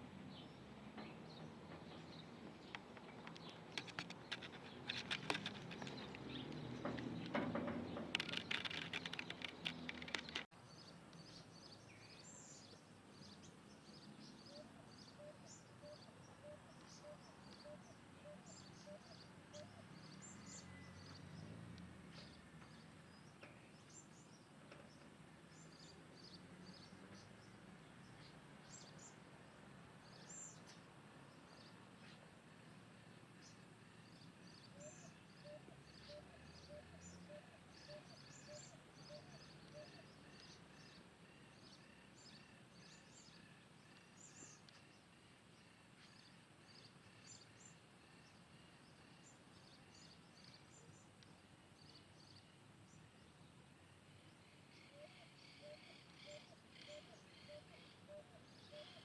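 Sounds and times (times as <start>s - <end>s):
birds chirping: 0.2s - 21.5s, 33.4s - 53.5s
close rustling: 2.5s - 10.5s
tapping clicks: 2.6s - 10.5s.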